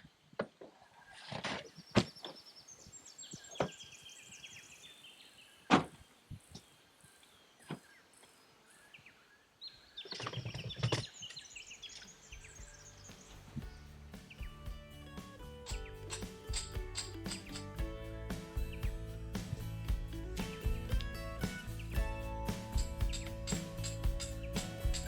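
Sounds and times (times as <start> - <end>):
bird warbling trills: 21.4 - 25.0.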